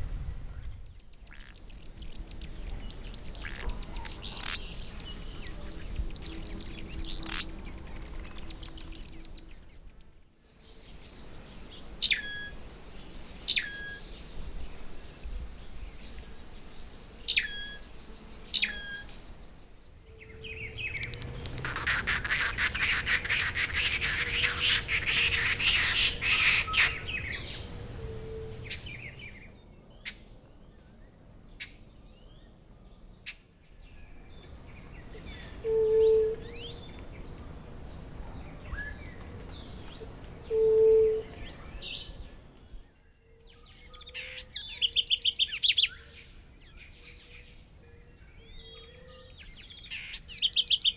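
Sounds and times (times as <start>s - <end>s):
high bird calls: 2.0s - 9.5s, 20.1s - 29.4s
fast chattering birdsong: 3.0s - 9.1s, 20.4s - 29.4s.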